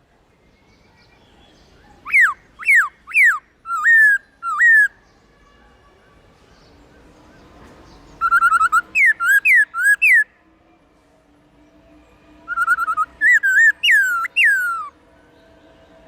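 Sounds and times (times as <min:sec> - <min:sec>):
bird whistled song: 0:00.4 - 0:05.2, 0:07.4 - 0:10.3, 0:12.4 - 0:15.8.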